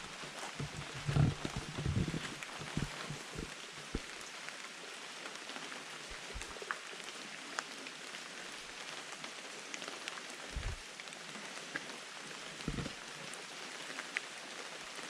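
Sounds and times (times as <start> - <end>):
steady rain hiss: 0.0 - 15.0
low thumps: 0.6 - 3.5.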